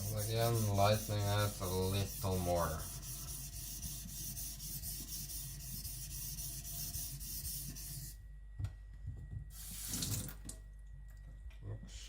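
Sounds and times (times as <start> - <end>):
blade scraping on water stone: 0.0 - 8.0.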